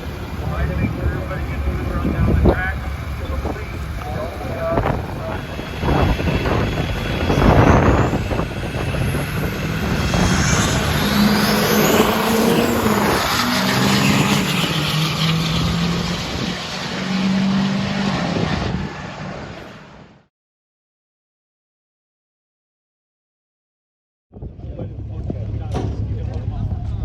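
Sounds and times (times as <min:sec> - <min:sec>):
diesel truck engine under load: 0:00.0 - 0:19.9
high-pitched engine whine: 0:00.0 - 0:20.3.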